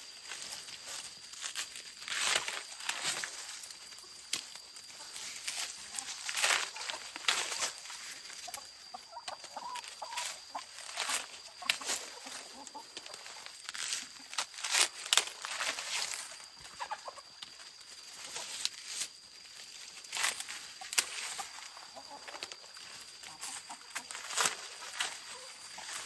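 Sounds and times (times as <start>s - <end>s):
sharp crackling or rustling: 0.2s - 8.6s, 10.0s - 16.9s, 22.3s - 26.0s
chickens clucking: 2.3s - 26.0s.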